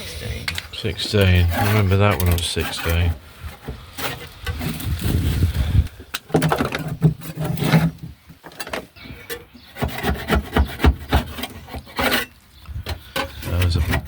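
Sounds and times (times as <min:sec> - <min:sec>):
scraping on metal floor: 0:01.0 - 0:14.0.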